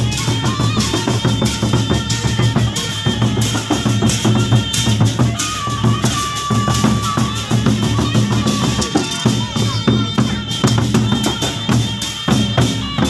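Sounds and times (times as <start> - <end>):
barrel drums beating: 0.0 - 13.0
clashing cymbals: 0.0 - 13.0.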